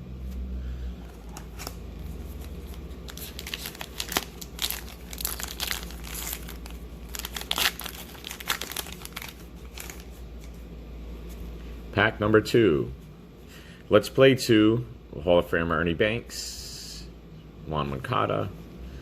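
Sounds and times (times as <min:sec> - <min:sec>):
wrapper crinkling and tearing: 0:01.2 - 0:10.2.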